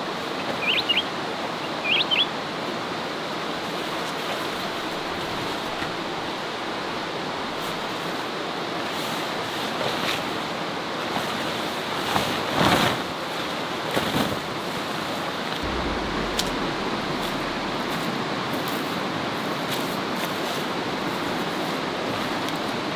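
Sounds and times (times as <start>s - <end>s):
rustle: 11.0s - 16.8s.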